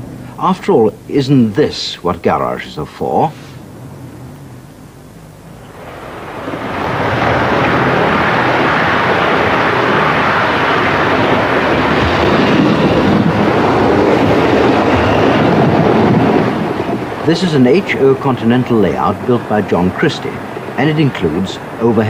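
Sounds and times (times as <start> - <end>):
train running on track: 5.5 - 22.0.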